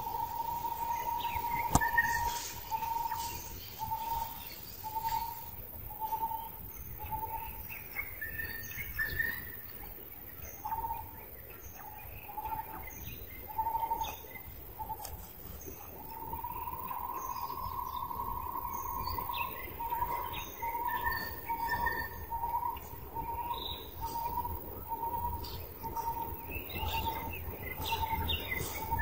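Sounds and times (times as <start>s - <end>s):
sharp click: 1.6s - 2.2s.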